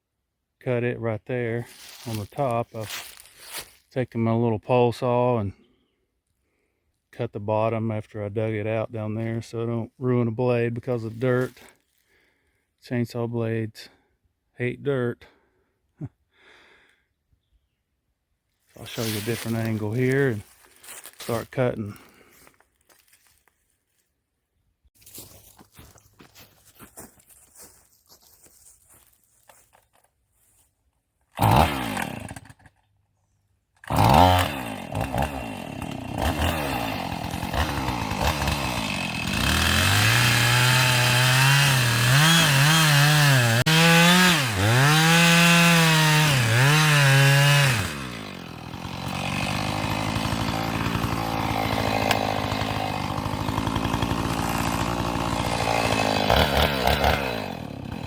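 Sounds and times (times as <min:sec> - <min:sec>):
chainsaw cutting wood: 0:01.7 - 0:03.9, 0:18.7 - 0:23.5, 0:31.3 - 0:32.8, 0:33.8 - 0:58.0.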